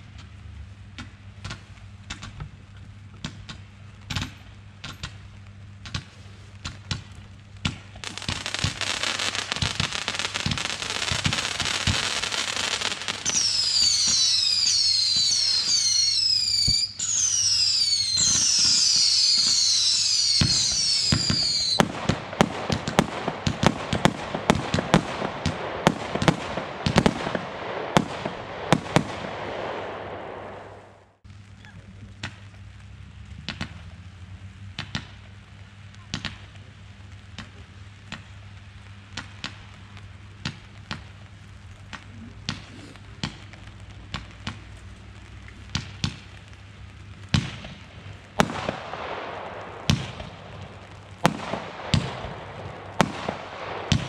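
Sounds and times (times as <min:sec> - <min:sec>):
fireworks pops and crackling: 0:00.0 - 0:54.0
fireworks bangs: 0:05.9 - 0:31.2, 0:39.1 - 0:54.0
fireworks whistles falling in pitch: 0:08.0 - 0:22.0.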